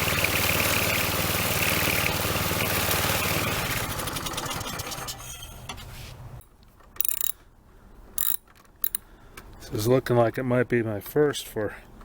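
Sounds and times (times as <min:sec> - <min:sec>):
string trimmer engine running: 0:00.0 - 0:05.3.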